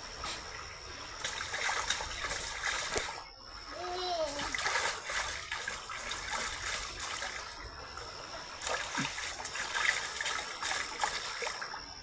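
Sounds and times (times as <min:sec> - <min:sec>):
water trickling and splashing: 0:00.0 - 0:12.0.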